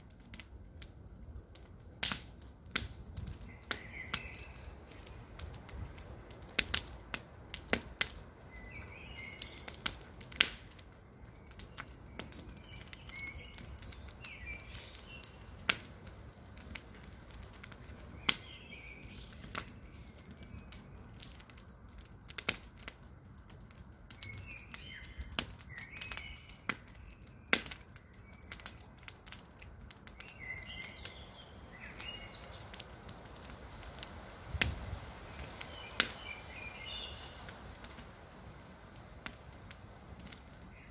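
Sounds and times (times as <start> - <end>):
campfire crackling and popping: 0.0 - 40.9
bird chirping: 3.5 - 5.3, 30.2 - 32.8, 35.5 - 37.6.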